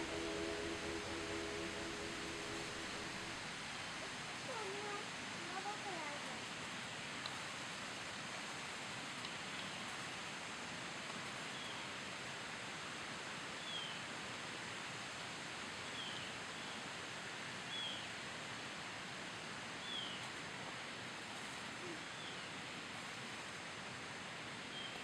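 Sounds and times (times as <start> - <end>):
faint rustling hiss: 0.0 - 25.0.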